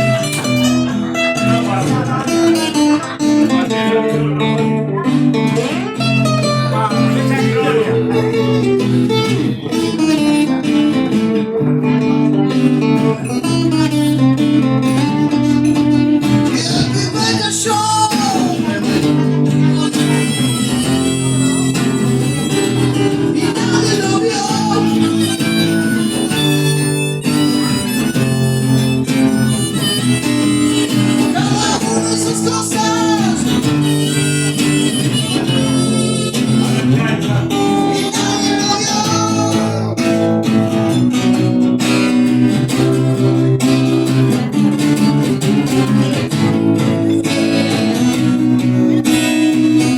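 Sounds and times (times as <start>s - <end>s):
acoustic guitar playing chords: 0.0s - 49.9s
harmonica bending notes: 0.0s - 49.9s.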